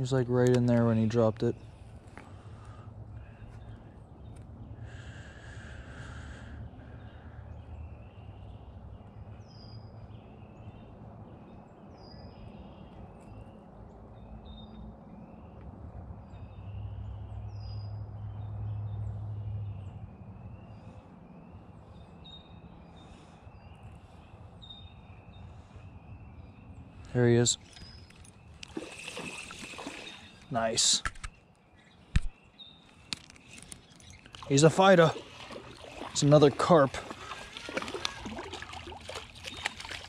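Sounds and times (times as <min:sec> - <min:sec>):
songbirds chirping and whistling: 0:00.0 - 0:40.0.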